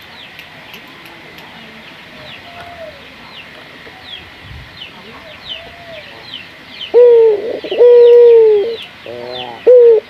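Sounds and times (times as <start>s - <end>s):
small birds chirping: 0.0s - 10.0s
dove cooing: 5.0s - 10.0s.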